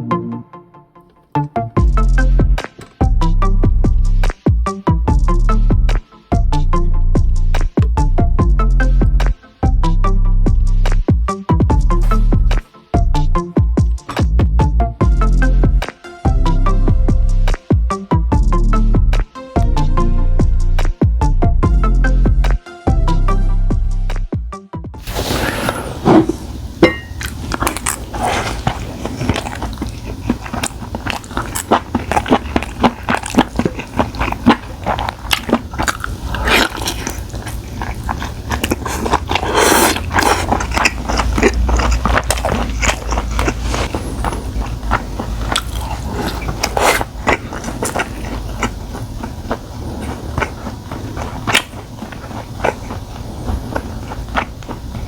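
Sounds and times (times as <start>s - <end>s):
wet biting and chewing: 11.9s - 12.7s, 25.0s - 55.0s.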